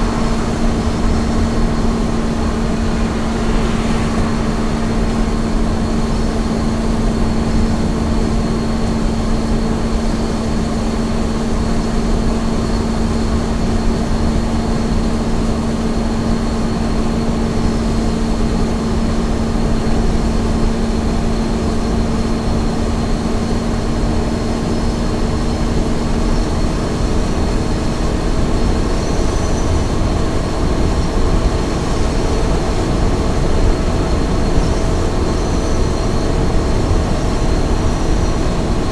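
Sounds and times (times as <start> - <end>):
steady hum: 0.0 - 8.0
truck engine and road rumble: 0.0 - 38.9.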